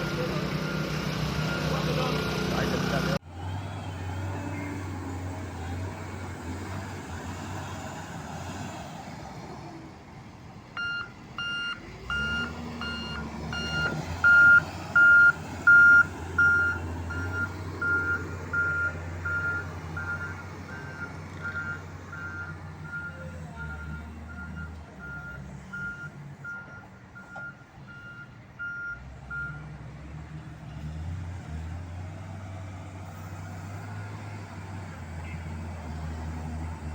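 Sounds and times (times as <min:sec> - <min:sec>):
vehicle engine humming: 0:00.0 - 0:36.9
reversing alarm beeping: 0:10.8 - 0:29.6.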